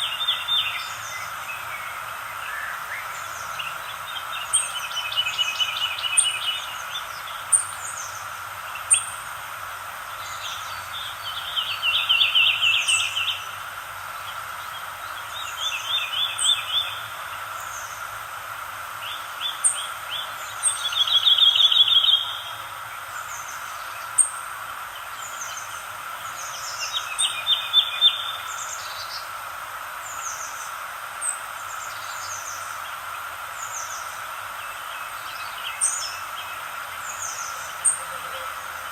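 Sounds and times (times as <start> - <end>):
songbirds trilling: 0.0 - 38.9
steady background hiss: 0.0 - 38.9.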